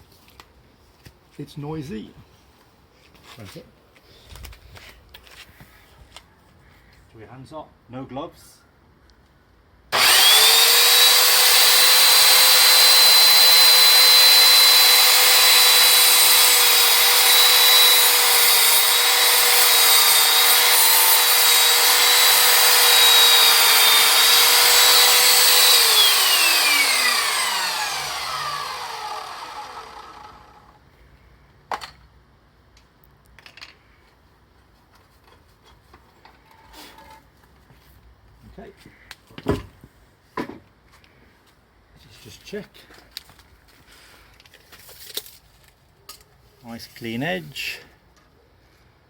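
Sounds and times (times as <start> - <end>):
electric chop saw whining: 9.9 - 30.8
saw blade winding down: 10.0 - 30.7.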